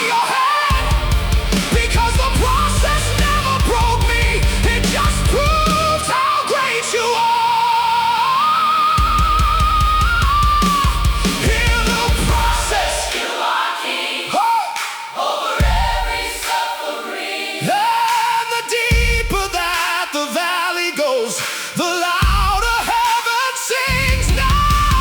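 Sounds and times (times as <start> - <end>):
instrumental rock music: 0.7 - 7.1, 8.5 - 13.1, 23.9 - 25.0.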